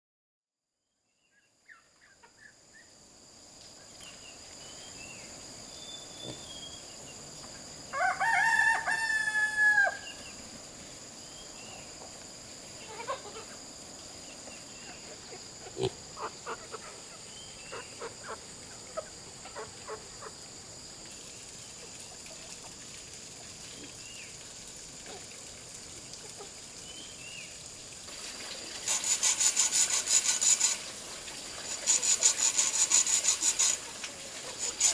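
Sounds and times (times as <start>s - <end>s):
chicken clucks and chirps: 1.7s - 2.5s, 14.8s - 20.4s
rooster crowing: 7.9s - 10.2s
sawing wood: 28.8s - 31.0s, 31.6s - 34.9s.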